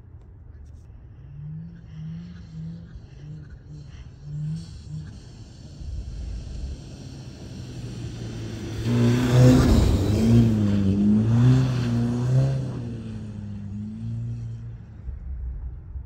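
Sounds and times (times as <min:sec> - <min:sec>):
car engine revving: 0:00.9 - 0:16.0
tyres hissing through snow: 0:03.7 - 0:12.2.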